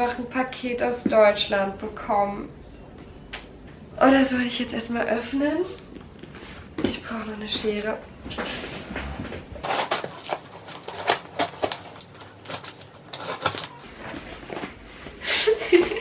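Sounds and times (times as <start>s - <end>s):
scissors cutting cardboard parcel: 9.6s - 13.8s.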